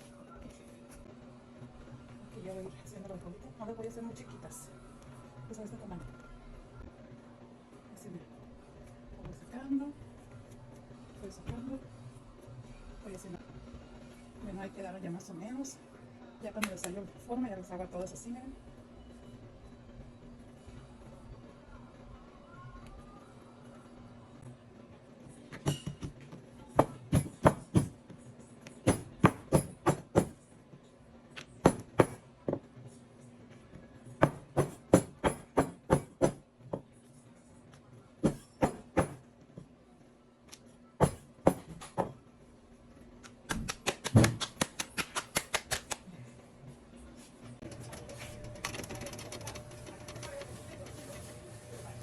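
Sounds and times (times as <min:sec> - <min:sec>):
hands patting dough: 0:43.3 - 0:46.0.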